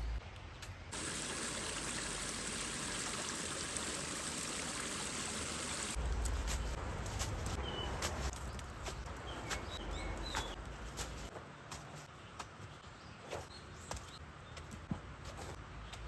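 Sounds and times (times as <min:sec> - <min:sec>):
stream water flowing: 0:00.9 - 0:06.0.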